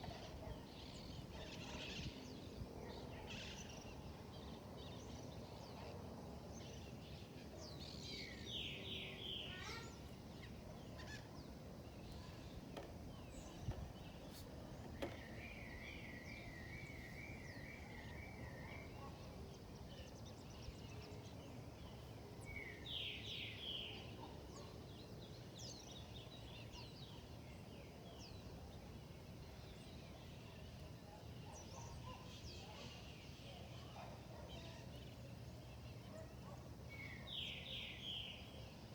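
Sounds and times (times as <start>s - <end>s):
low background noise: 0.0s - 38.9s
brief knocks: 14.8s - 15.4s.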